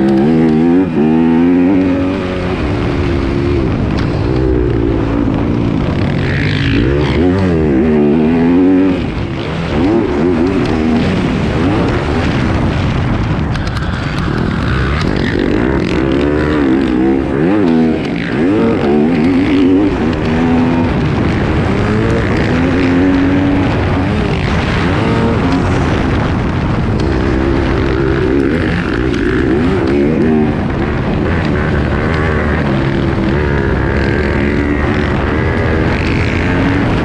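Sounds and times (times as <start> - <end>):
motocross engine revving: 0.0 - 37.0.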